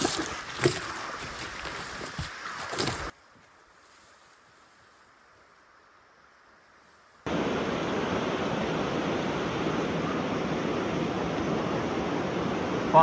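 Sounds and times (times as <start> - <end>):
water rushing: 0.0 - 3.1, 7.3 - 13.0
faint steady hiss: 0.0 - 9.8.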